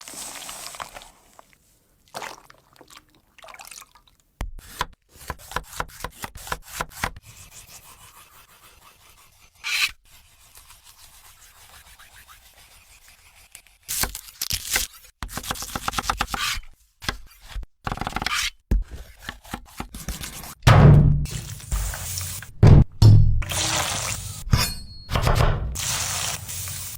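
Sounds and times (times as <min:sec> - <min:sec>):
scraping and rubbing: 0:18.3 - 0:22.6.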